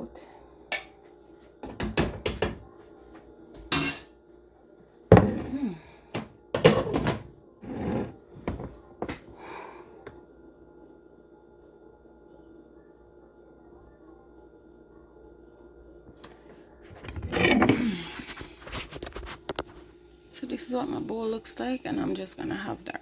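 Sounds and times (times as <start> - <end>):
ladle clinking against pot and bowl: 3.7 - 4.2.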